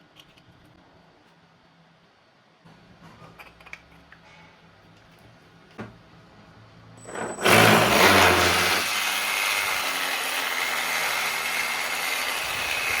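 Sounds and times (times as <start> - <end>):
electric motor whine: 7.1 - 13.0.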